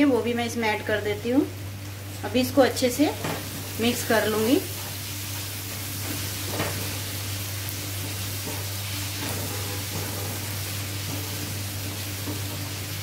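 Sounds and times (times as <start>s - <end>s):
constant low hum: 0.0s - 13.0s
masala sizzling in a frying pan: 0.0s - 13.0s
spatula scraping a pan: 8.1s - 12.7s.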